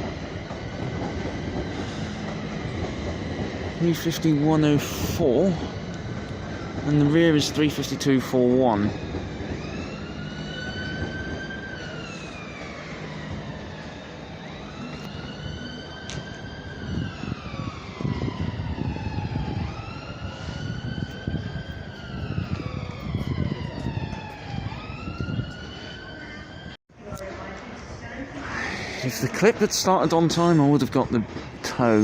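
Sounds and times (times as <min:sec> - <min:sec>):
train traction motors whining: 0:00.0 - 0:26.8
low rumble of moving train: 0:00.0 - 0:32.0.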